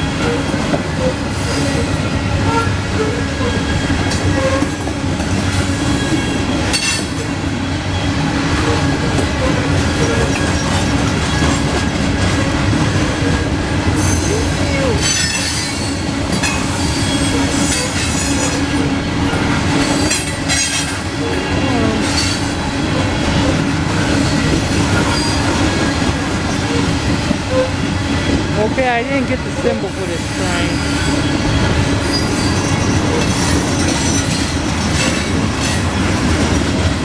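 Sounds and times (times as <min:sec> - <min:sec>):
steel wheels rumbling on rails: 0:00.0 - 0:37.0
high-pitched wheel squeal: 0:00.2 - 0:04.8, 0:14.0 - 0:23.6, 0:27.5 - 0:28.4, 0:30.5 - 0:35.1.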